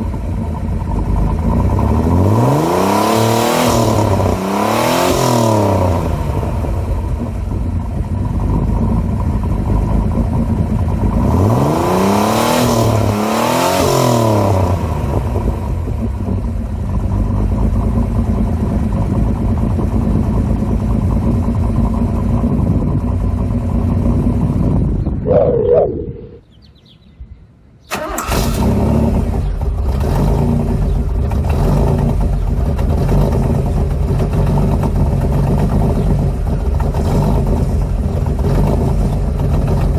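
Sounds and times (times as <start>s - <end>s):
car exhaust idling: 0.0s - 2.8s, 3.7s - 12.0s, 14.3s - 25.3s, 28.0s - 39.9s
throttle blips: 25.2s - 26.4s
engine starting: 27.9s - 31.0s.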